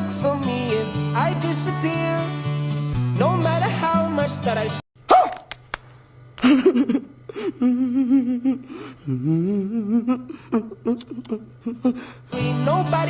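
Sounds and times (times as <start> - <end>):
person humming with vibrato: 7.5 - 12.7.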